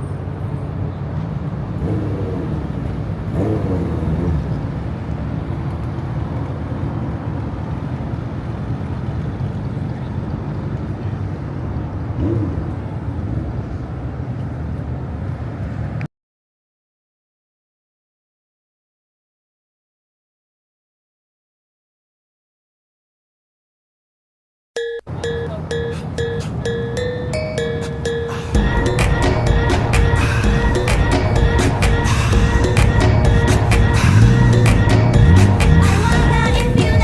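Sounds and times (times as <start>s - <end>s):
car engines rumbling: 0.0s - 16.1s, 25.0s - 37.0s.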